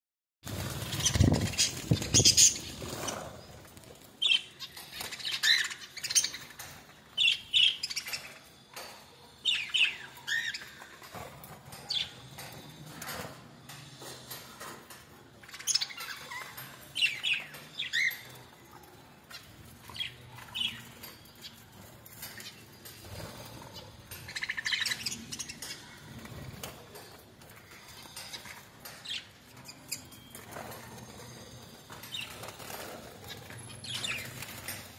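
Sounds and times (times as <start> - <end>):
wings flapping: 0.5 - 3.4
pet birds chirping: 0.6 - 12.7, 15.4 - 34.9.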